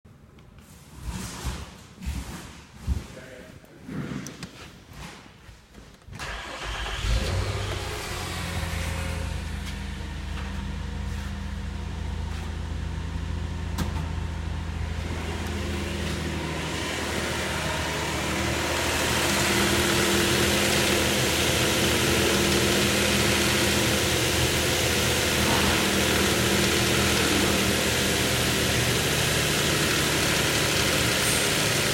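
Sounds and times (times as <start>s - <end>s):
car engine starting and idling: 6.1s - 31.9s.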